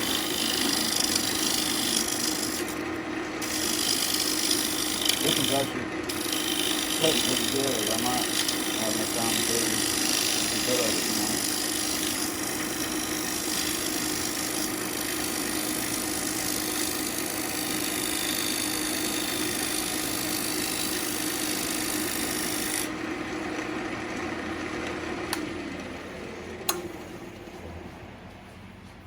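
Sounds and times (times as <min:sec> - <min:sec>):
hiss of tool cutting wood: 0:00.0 - 0:02.8, 0:03.4 - 0:22.9
lathe motor hum: 0:00.0 - 0:29.0.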